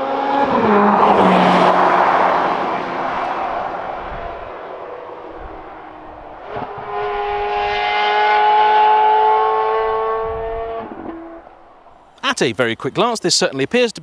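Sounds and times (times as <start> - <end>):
sports car engine driving by: 0.0 - 12.0.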